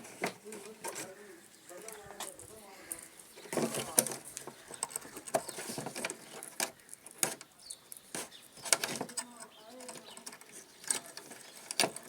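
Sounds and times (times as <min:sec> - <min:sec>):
parts rattling: 0:00.0 - 0:12.0
small hard parts clicking: 0:00.0 - 0:12.0.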